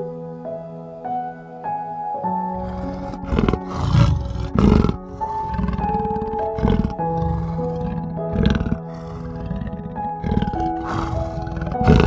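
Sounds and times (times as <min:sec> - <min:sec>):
soft piano music: 0:00.0 - 0:12.0
animal roaring: 0:02.5 - 0:12.0.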